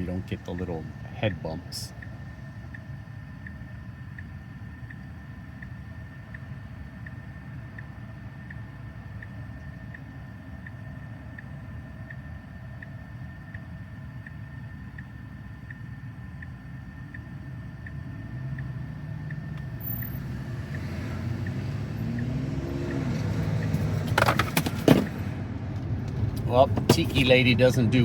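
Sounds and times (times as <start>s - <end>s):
road and tyre rumble: 0.0s - 28.0s
turn signal ticking: 0.0s - 28.0s
clatter of sharp knocks: 23.8s - 25.3s.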